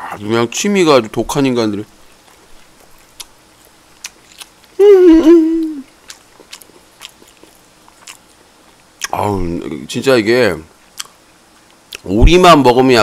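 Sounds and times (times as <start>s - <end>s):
faint eating clicks: 1.0s - 4.8s, 5.8s - 9.2s, 10.9s - 12.1s
man humming: 4.8s - 5.8s.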